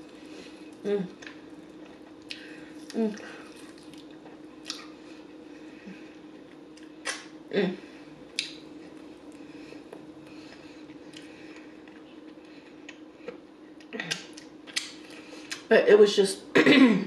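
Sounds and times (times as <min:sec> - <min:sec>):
low hum: 0:00.0 - 0:15.6
mouth chewing sounds: 0:00.7 - 0:05.0.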